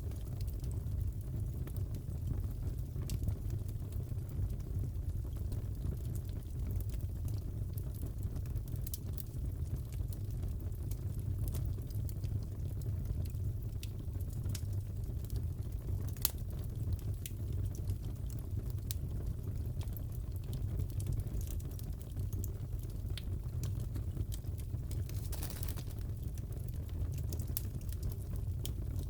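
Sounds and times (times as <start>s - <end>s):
fire crackles and pops: 0.0s - 29.0s
fireplace wood burning: 0.0s - 29.0s.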